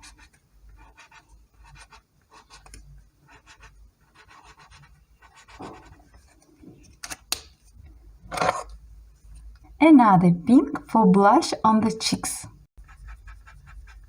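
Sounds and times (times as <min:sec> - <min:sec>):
drawing tip scratching on paper: 0:12.8 - 0:14.0.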